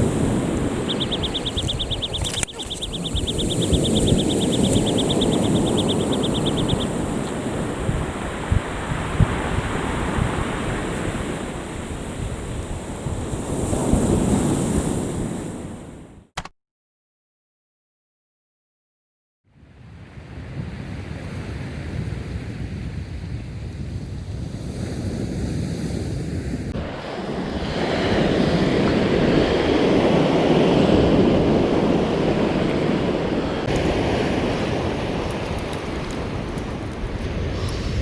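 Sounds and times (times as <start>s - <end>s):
waves washing onto beach: 0.0s - 16.0s, 24.6s - 38.0s
wind buffeting microphone: 0.0s - 16.0s.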